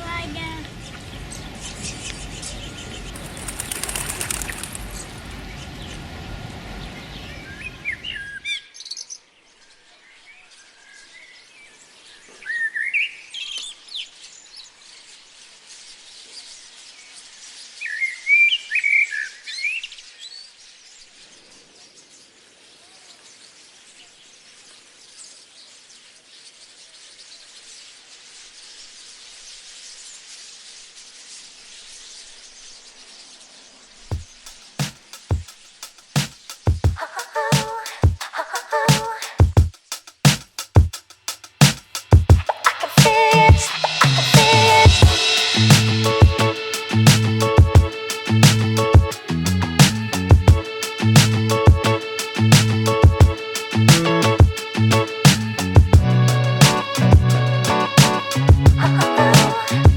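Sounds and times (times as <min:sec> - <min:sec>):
bird chirping: 0:00.8 - 0:06.0, 0:41.9 - 0:59.8
rushing noise: 0:42.0 - 0:59.9.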